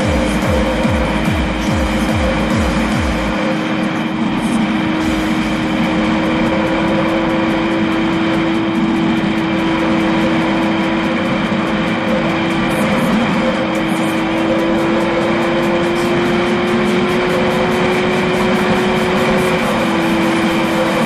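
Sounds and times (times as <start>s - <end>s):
motorcycle engine cruising: 0.0s - 21.0s
wind and road noise: 0.0s - 21.0s.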